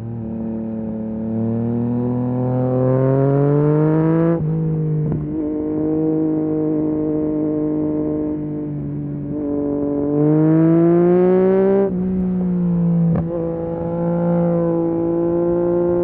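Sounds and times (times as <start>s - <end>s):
motorcycle engine accelerating: 0.1s - 16.0s.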